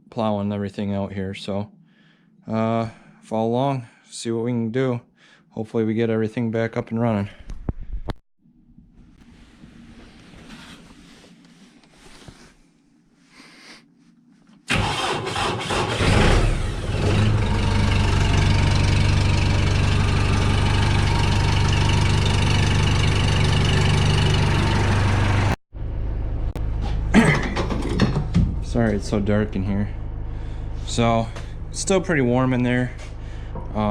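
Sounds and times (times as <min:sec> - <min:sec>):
tractor engine idling: 0:14.7 - 0:16.1, 0:16.9 - 0:25.6
diesel tractor engine starting: 0:14.7 - 0:33.9.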